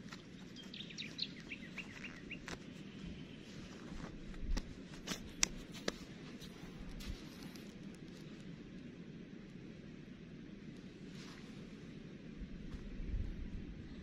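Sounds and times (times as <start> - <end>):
small bird chirping: 0.0 - 3.8
low background noise: 0.0 - 14.0.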